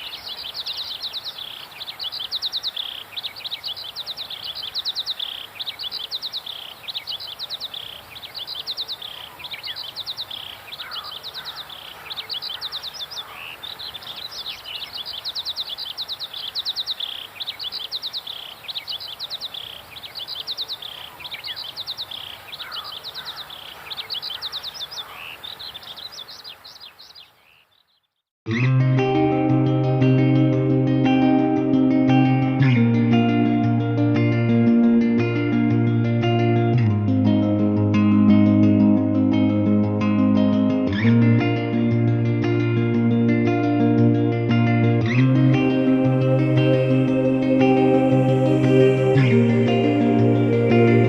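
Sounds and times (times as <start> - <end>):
lower bird calling: 0.0 - 28.2
birds singing trilled phrases: 0.0 - 28.3.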